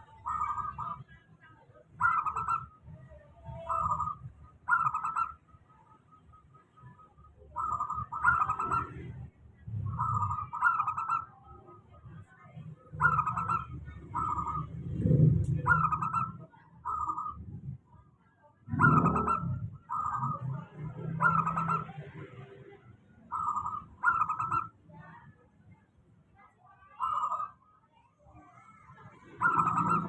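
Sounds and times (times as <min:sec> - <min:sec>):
dove cooing: 0:00.0 - 0:01.1, 0:02.0 - 0:05.4, 0:07.5 - 0:08.8, 0:09.8 - 0:11.3, 0:12.9 - 0:17.4, 0:18.7 - 0:22.0, 0:23.3 - 0:24.7, 0:29.3 - 0:30.0
low rumbling noise: 0:11.8 - 0:18.0.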